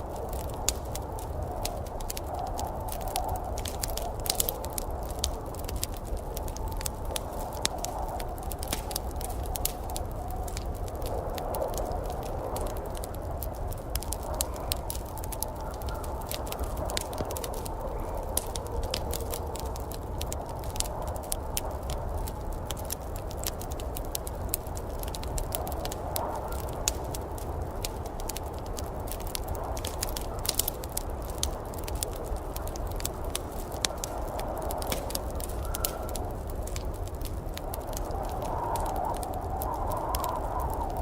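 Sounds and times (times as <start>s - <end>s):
wood fire crackling: 0.0s - 41.0s.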